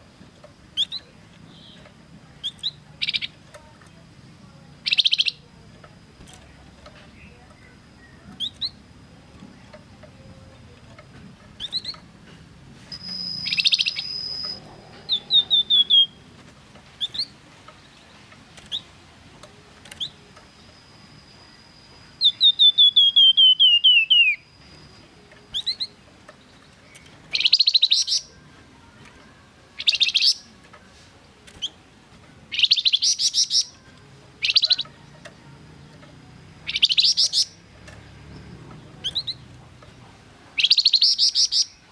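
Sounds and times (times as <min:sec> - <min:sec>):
songbird whistling: 0:00.7 - 0:03.4, 0:04.8 - 0:05.5, 0:07.1 - 0:08.8, 0:11.6 - 0:12.0, 0:12.8 - 0:16.3, 0:17.0 - 0:17.4, 0:20.0 - 0:28.4, 0:29.7 - 0:30.5, 0:32.5 - 0:35.2, 0:36.6 - 0:37.7, 0:39.0 - 0:39.5, 0:40.6 - 0:41.9
bird chattering: 0:00.7 - 0:03.7, 0:04.8 - 0:05.5, 0:06.9 - 0:08.9, 0:09.5 - 0:12.1, 0:13.0 - 0:16.2, 0:16.8 - 0:19.0, 0:22.1 - 0:28.4, 0:29.7 - 0:30.5, 0:32.5 - 0:35.9, 0:36.5 - 0:37.7, 0:38.8 - 0:41.9.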